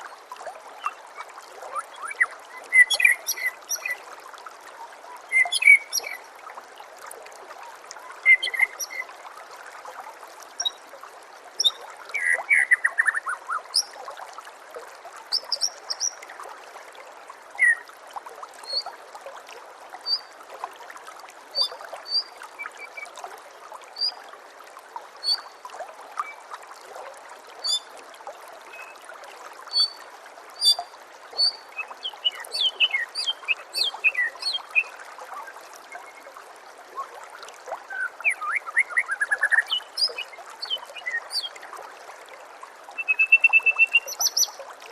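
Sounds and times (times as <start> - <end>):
running water trickling: 0.0 - 44.9
songbird chirps and whistles: 0.8 - 4.0, 5.3 - 6.2, 8.2 - 9.1, 11.6 - 13.9, 17.6 - 17.9, 31.4 - 36.3, 43.0 - 44.6.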